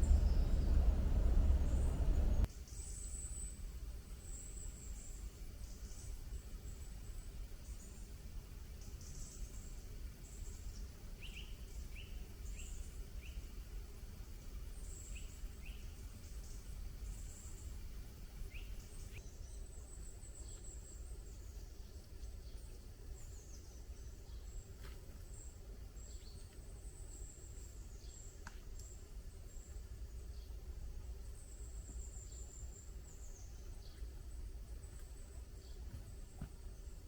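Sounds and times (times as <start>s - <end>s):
faint low rumble: 0.0s - 2.5s
small birds chirping: 0.0s - 3.4s, 8.8s - 30.6s.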